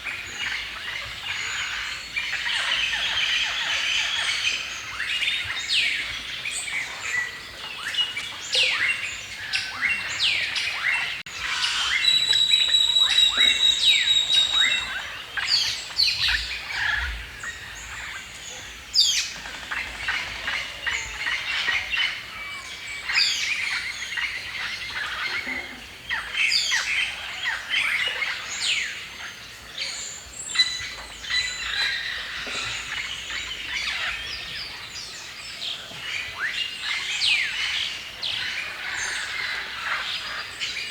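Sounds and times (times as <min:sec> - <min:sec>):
songbirds chirping: 0:00.0 - 0:40.9
bird trilling: 0:11.4 - 0:15.0.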